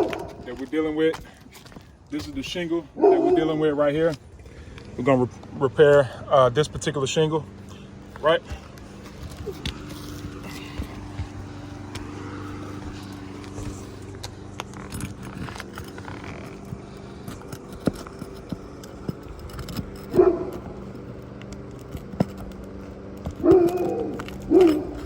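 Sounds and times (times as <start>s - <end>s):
dog barking: 0.0s - 0.4s, 3.0s - 3.5s, 20.1s - 20.6s, 23.4s - 25.0s
steady low hum: 0.0s - 25.0s
hand tool clicks and taps on shingle: 12.8s - 25.0s.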